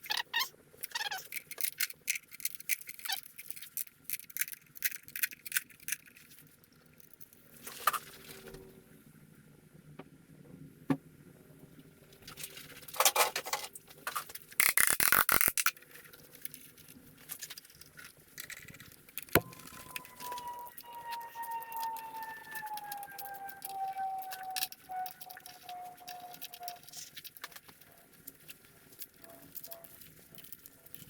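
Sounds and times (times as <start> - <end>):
metal tools clinking and scraping: 12.4 - 14.3
siren wailing: 19.4 - 27.0.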